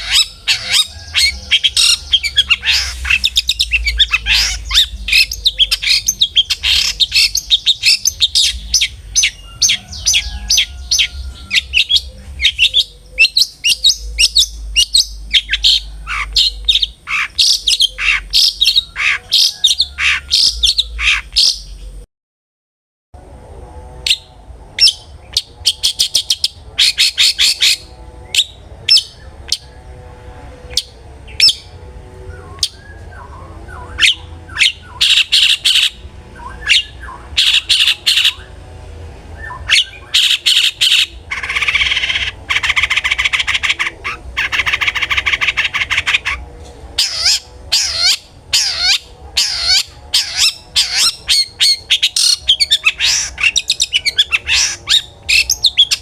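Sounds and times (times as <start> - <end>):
shrike singing: 0.0 - 22.0.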